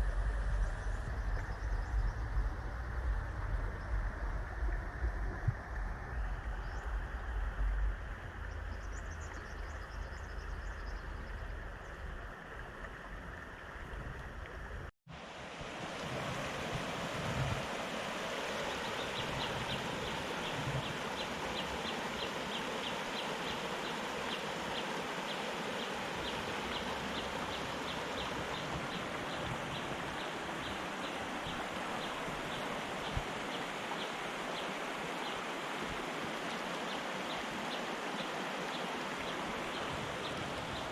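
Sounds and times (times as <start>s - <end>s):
deep rumble: 0.0s - 12.0s
river water rushing: 15.1s - 40.9s.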